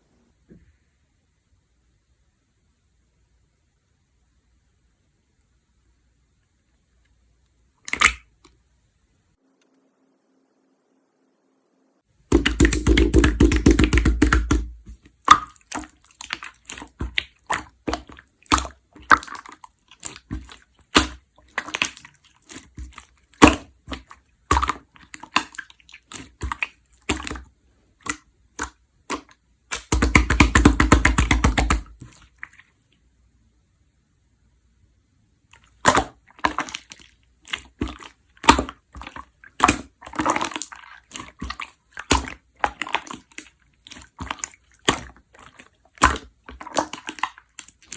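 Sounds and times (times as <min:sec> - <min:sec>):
sharp slime pops and clicks: 0:07.9 - 0:08.2, 0:12.3 - 0:15.6, 0:28.0 - 0:32.0
slime crackling pops: 0:12.3 - 0:19.3, 0:28.0 - 0:32.1.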